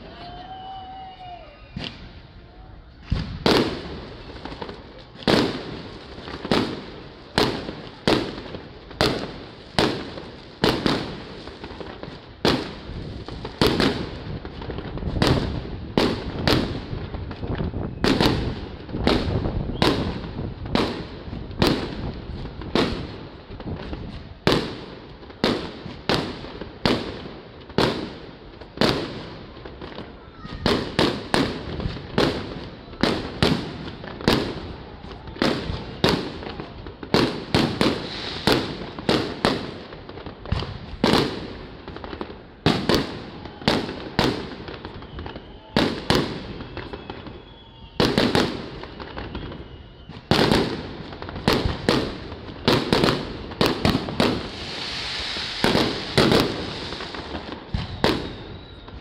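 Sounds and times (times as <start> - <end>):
fireworks shells bursting: 53.7 - 59.0.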